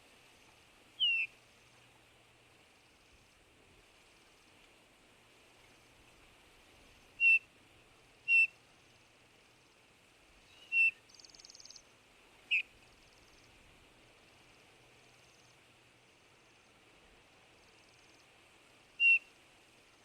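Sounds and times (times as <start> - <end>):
bird piping whistled call: 1.0 - 1.3, 7.2 - 7.4, 8.3 - 8.6, 10.4 - 11.8, 12.5 - 12.7, 19.0 - 19.3.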